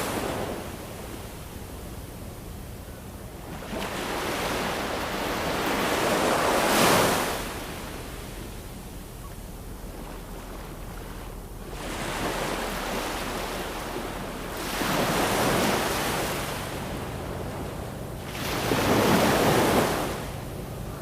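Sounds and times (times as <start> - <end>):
ocean waves washing ashore: 0.0 - 21.0.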